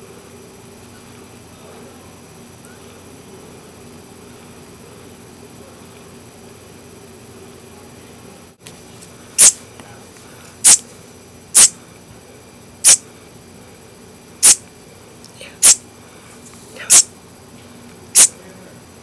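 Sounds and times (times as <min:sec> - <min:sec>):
baby bird peeping: 0:12.8 - 0:13.0, 0:14.4 - 0:14.6, 0:15.5 - 0:15.8, 0:16.8 - 0:17.1.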